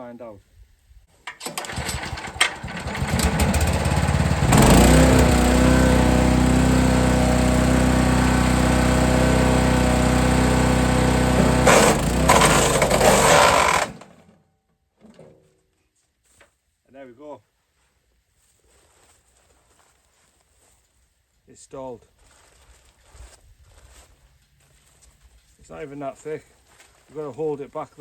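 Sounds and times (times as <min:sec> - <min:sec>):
wood chipper engine running: 0:01.4 - 0:14.1
branches crunching in chipper: 0:11.4 - 0:14.0.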